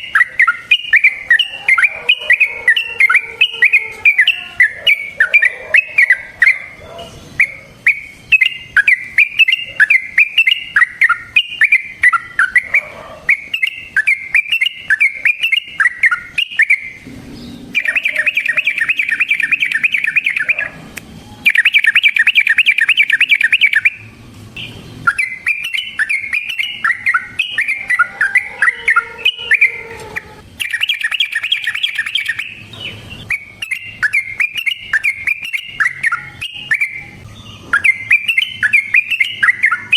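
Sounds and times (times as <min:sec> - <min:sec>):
bulbul singing warbling phrases: 0:00.0 - 0:39.9
bird rattling trills: 0:17.7 - 0:20.7, 0:21.4 - 0:24.0, 0:25.1 - 0:37.0.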